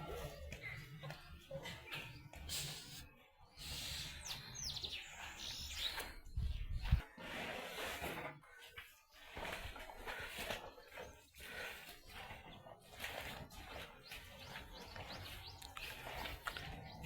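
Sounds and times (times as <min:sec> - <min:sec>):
bird chirping: 0:00.0 - 0:07.0, 0:13.7 - 0:17.0.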